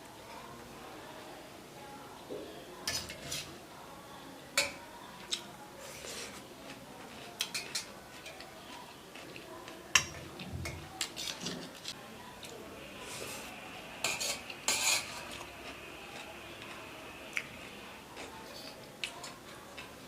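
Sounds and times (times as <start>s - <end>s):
cutlery clinking on a plate: 7.4s - 8.5s, 9.9s - 11.7s.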